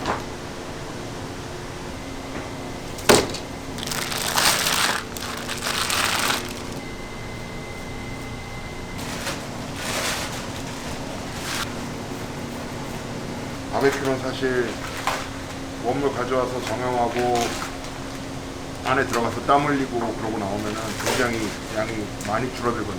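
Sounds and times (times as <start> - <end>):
steady hum: 0.0 - 17.2
rustling and scraping: 3.8 - 6.8, 9.0 - 11.8.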